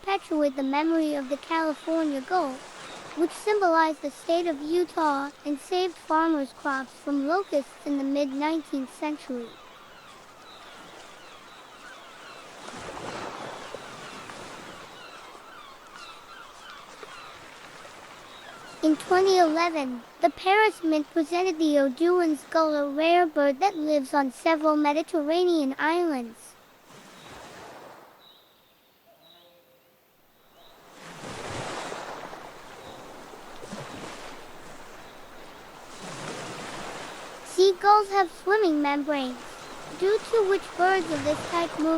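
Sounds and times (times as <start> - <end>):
waves washing: 0.0 - 28.2, 30.8 - 41.9
short falling bird calls: 9.4 - 18.8.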